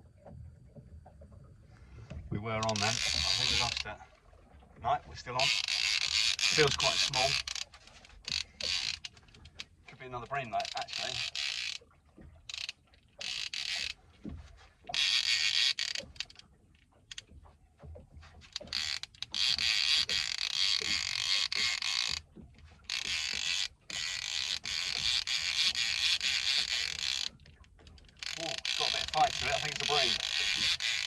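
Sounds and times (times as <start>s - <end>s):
fishing reel gears whirring: 2.6s - 4.0s, 5.2s - 14.0s, 14.9s - 17.4s, 18.3s - 31.0s.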